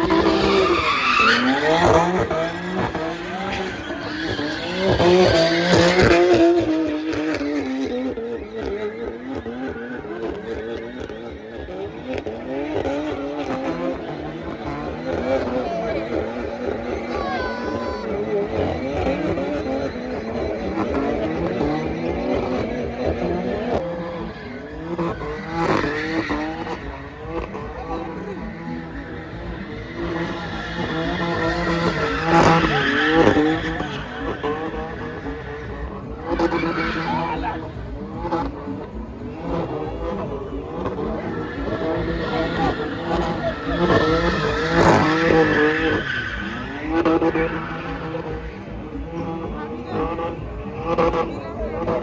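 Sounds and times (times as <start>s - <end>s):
car engine revving: 0.0s - 52.0s.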